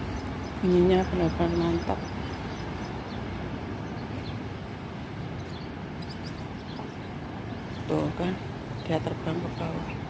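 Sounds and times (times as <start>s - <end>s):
low rumble background noise: 0.0s - 10.0s
high bird chirps: 5.3s - 7.9s.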